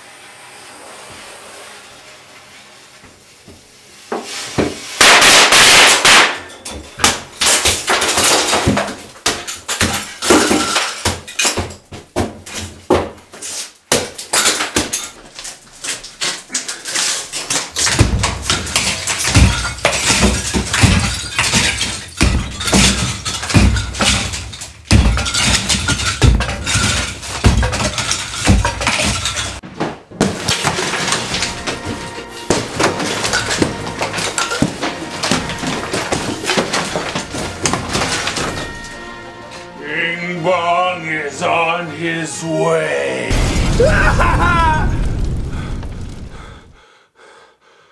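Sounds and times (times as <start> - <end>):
glass smashing: 5.0 - 11.8, 14.0 - 29.6, 30.2 - 39.0
crashing and breaking: 5.0 - 12.9, 13.9 - 39.1, 43.3 - 46.8
loud blast: 43.3 - 46.8.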